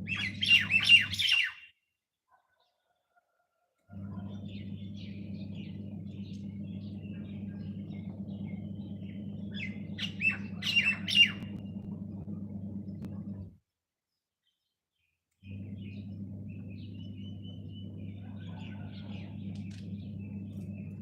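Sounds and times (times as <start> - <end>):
steady low hum: 0.0 - 1.1, 3.9 - 13.6, 15.4 - 21.0
squawking bird calls: 0.0 - 1.8, 4.1 - 11.6
small birds chirping: 0.0 - 3.2, 3.9 - 21.0.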